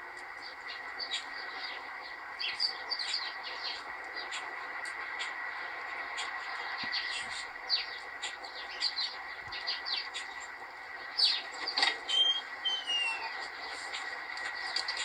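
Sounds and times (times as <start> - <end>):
small birds chirping: 0.2 - 5.4, 6.1 - 15.0
falling whistles: 12.1 - 13.4.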